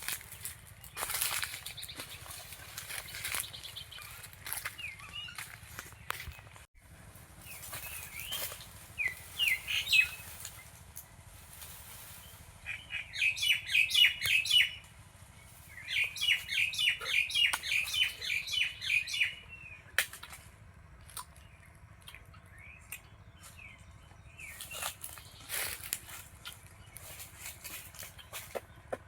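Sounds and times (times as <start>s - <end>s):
bird chirping: 0.0s - 6.7s, 7.4s - 11.2s, 12.2s - 29.0s.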